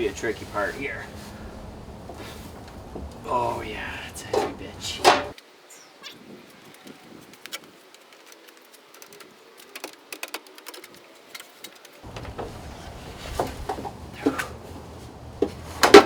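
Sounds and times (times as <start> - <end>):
low rumbling noise: 0.0 - 5.3
drill press knocking on wooden planks: 12.1 - 16.0.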